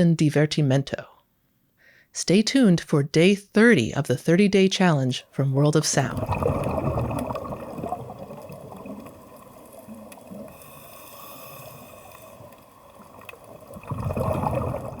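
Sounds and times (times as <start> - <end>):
water trickling and gurgling: 6.0 - 15.0.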